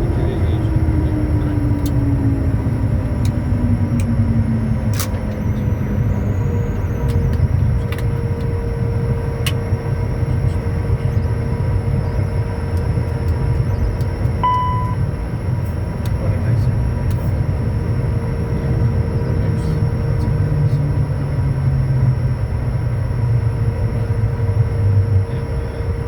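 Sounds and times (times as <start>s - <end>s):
cockpit low rumble: 0.0s - 26.0s
jet engine tone falling: 11.2s - 15.4s.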